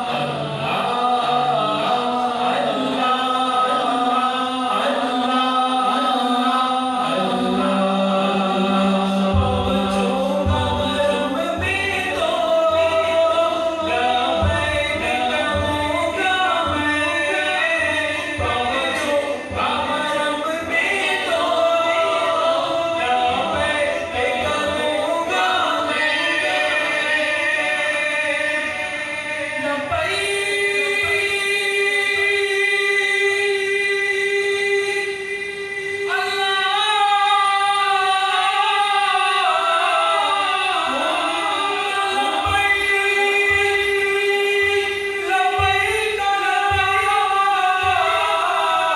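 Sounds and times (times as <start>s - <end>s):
hummed vocal drone: 0.0s - 36.2s
man singing devotional song: 0.0s - 48.9s.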